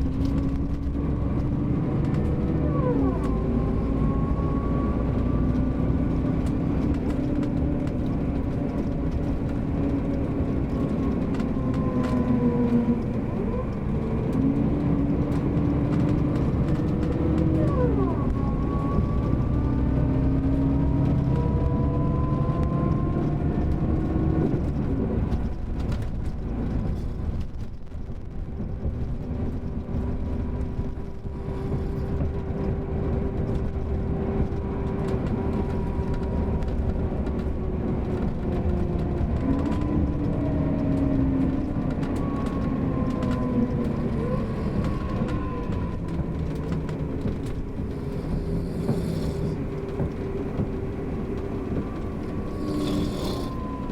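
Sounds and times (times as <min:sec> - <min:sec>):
bus engine rumble: 0:00.0 - 0:53.9
gearbox whine: 0:30.5 - 0:53.9.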